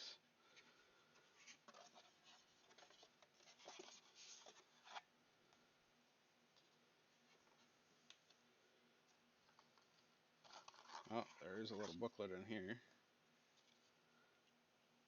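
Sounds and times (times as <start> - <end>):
cardboard and paper rustling: 0.5 - 5.1, 9.4 - 12.2.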